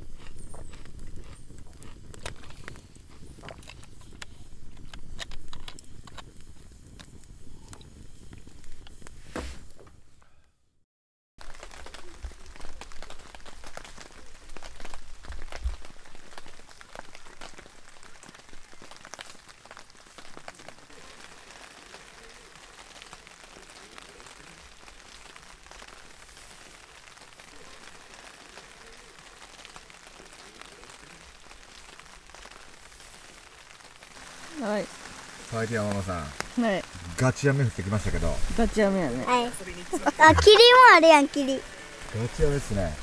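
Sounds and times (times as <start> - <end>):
raindrops striking close by: 0.0 - 9.9, 11.4 - 43.0
heavy rain in a forest: 11.4 - 43.0.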